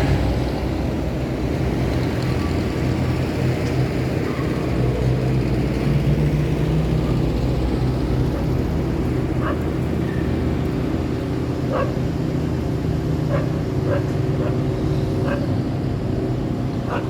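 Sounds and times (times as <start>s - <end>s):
heavy vehicle engine humming: 0.0s - 17.0s
street traffic: 0.0s - 17.0s
dog barking: 9.4s - 9.8s, 11.6s - 12.0s, 13.2s - 15.6s.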